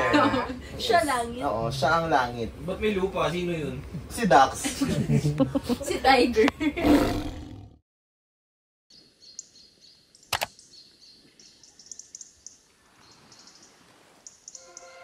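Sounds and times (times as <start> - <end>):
faint outdoor background noise: 0.0 - 7.6, 8.9 - 15.0
birds chirping: 8.9 - 15.0.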